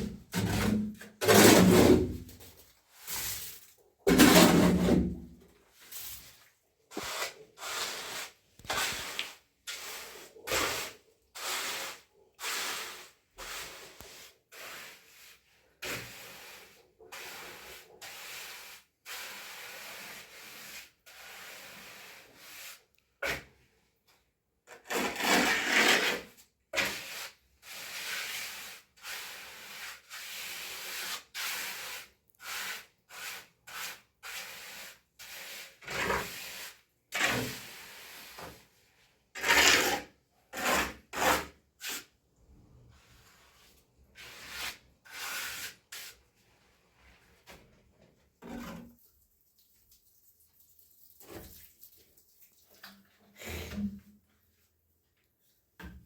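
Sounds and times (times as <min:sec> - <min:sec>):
hand tool scraping hard surface: 0:00.0 - 0:02.5, 0:03.1 - 0:05.2, 0:24.7 - 0:38.6, 0:39.4 - 0:42.1.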